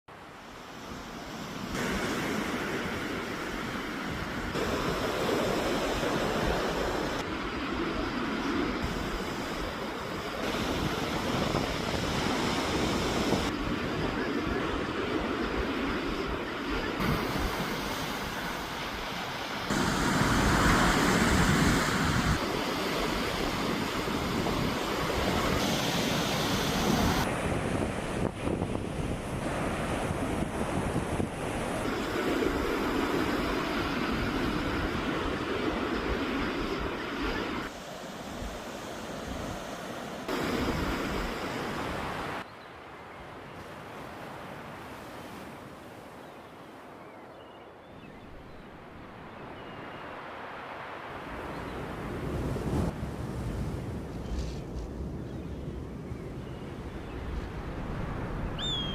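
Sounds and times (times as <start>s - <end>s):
sea waves washing on shore: 0.1s - 42.5s, 48.7s - 58.9s
wind rumbling on microphone: 1.2s - 37.7s, 51.2s - 58.9s.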